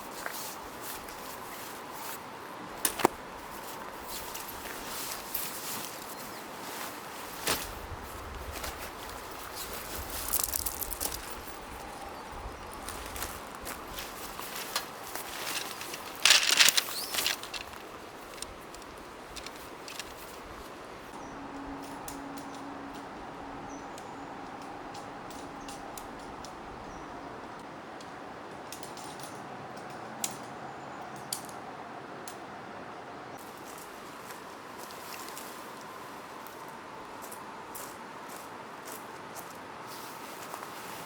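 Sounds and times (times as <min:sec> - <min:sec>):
steady background hiss: 0:00.0 - 0:41.0
small objects clattering: 0:09.6 - 0:12.0, 0:14.0 - 0:20.2.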